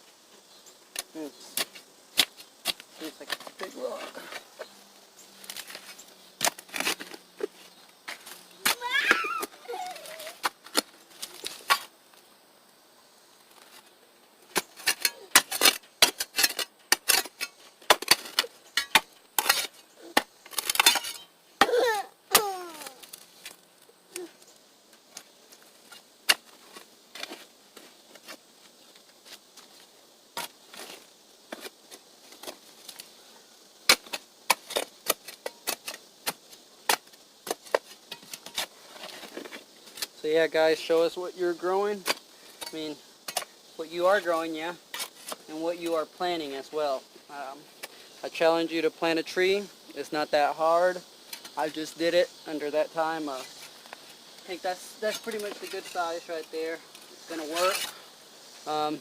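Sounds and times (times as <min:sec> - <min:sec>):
digging tool chopping clay soil: 0:01.0 - 0:03.5, 0:14.5 - 0:22.5.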